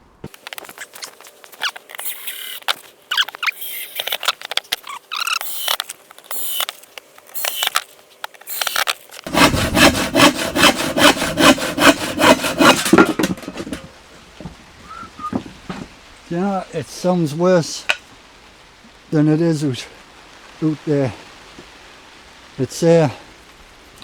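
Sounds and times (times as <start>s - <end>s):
handsaw cutting wood: 8.5s - 13.9s.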